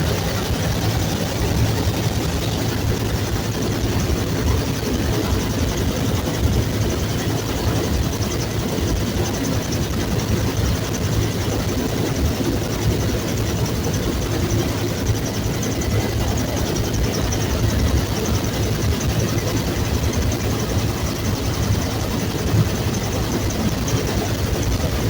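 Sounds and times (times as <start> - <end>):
helicopter engine and rotor: 0.0 - 25.0.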